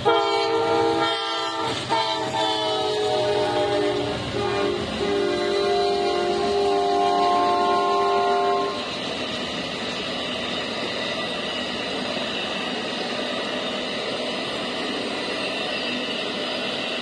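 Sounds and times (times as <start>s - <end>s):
train horn chord: 0.0s - 8.9s.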